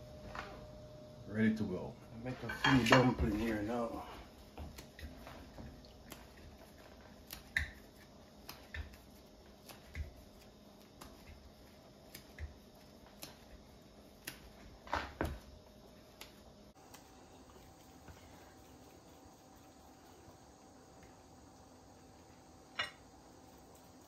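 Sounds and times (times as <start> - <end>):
dough patting against hands: 4.4 - 22.0.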